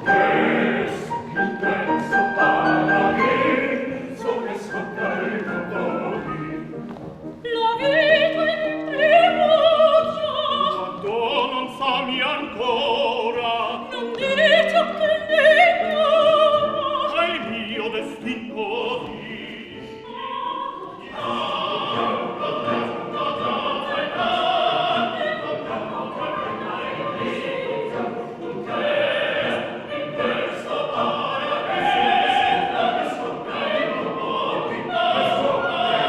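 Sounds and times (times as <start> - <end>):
classical accompaniment: 0.0 - 36.0
operatic singing with vibrato: 0.0 - 36.0.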